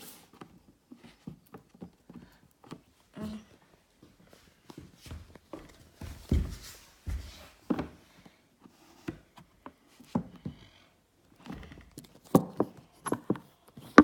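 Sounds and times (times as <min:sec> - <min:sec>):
objects thumping and knocking: 0:11.5 - 0:14.0.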